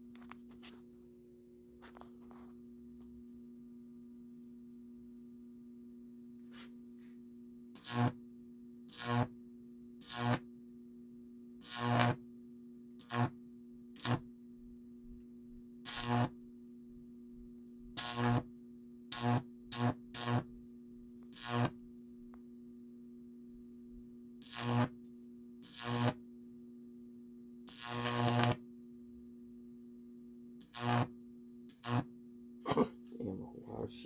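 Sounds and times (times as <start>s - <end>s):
high-voltage arcing crackle: 7.8s - 8.2s, 8.9s - 9.3s, 10.0s - 10.4s, 11.6s - 12.2s, 13.0s - 13.4s, 14.0s - 14.2s, 15.9s - 16.4s, 18.0s - 18.5s, 19.1s - 20.5s, 21.3s - 21.8s, 24.4s - 25.0s, 25.6s - 26.2s, 27.7s - 28.6s, 30.6s - 31.1s, 31.7s - 32.1s.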